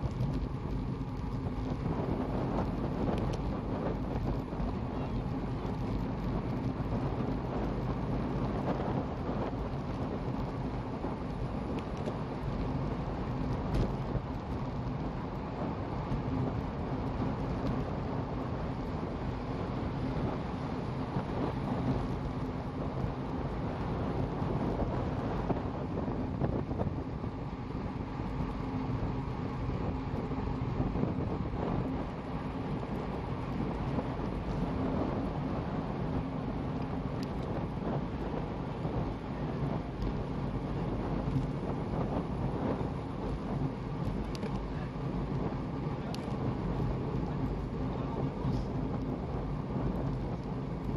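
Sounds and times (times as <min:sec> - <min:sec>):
low rumble: 0:00.0 - 0:50.9
wind buffeting microphone: 0:00.0 - 0:50.9.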